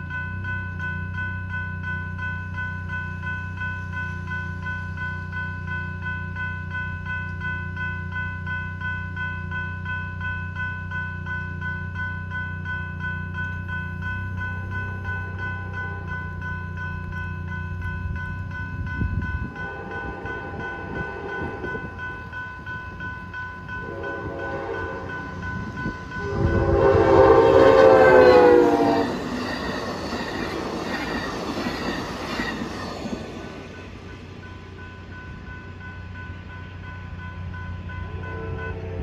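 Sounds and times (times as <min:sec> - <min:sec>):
crossing bells ringing: 0:00.0 - 0:39.0
train wheels clattering on rail: 0:12.6 - 0:37.9
train horn blasts: 0:15.6 - 0:16.4, 0:19.4 - 0:22.1, 0:23.7 - 0:29.5, 0:38.1 - 0:39.0.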